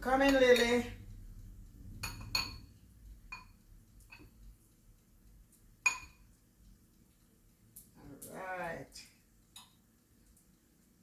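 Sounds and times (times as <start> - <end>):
kitchenware clinking: 0.0 - 1.0, 2.0 - 4.4, 5.8 - 6.4.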